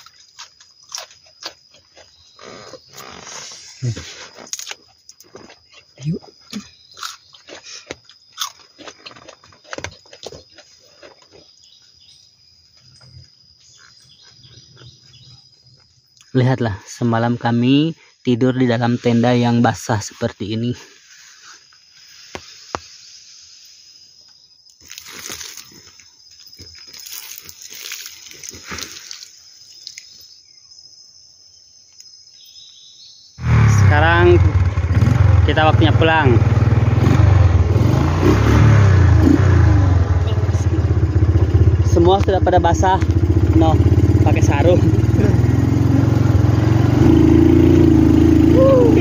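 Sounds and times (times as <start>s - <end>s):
high-pitched insect drone: 11.5s - 34.6s, 39.2s - 47.8s, 48.4s - 49.0s.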